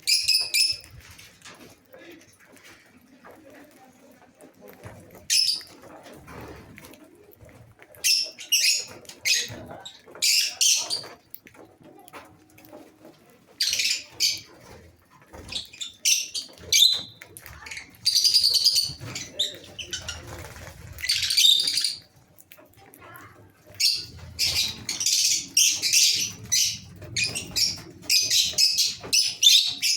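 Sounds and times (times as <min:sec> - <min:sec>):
lovebirds chirping: 0:00.0 - 0:01.3, 0:05.2 - 0:05.8, 0:08.0 - 0:11.3, 0:13.5 - 0:22.2, 0:23.7 - 0:29.9.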